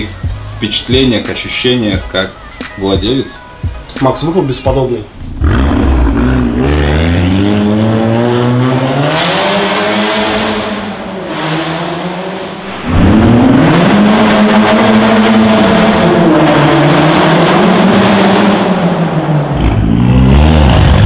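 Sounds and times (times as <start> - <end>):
car engine accelerating hard: 5.2 - 21.0.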